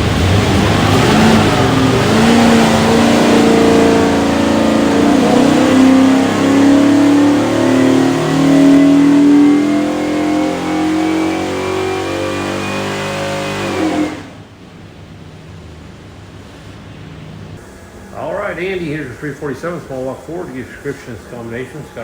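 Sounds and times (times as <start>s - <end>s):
engine revving: 0.0s - 14.5s.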